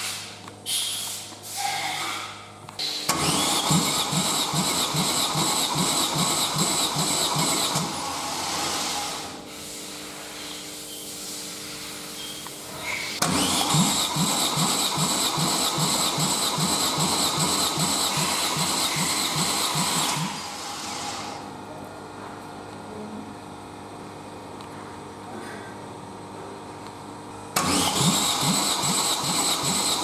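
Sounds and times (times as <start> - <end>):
engine cranking by starter motor: 2.8 - 9.3, 12.8 - 21.4, 27.5 - 30.0.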